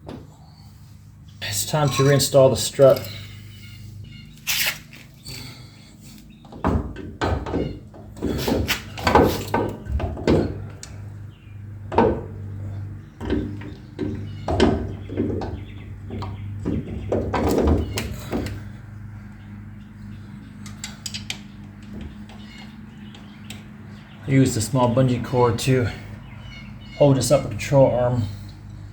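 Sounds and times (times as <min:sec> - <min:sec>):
steady low hum: 0:00.0 - 0:06.6, 0:07.7 - 0:28.9
metal clunks and scrapes: 0:01.6 - 0:03.4.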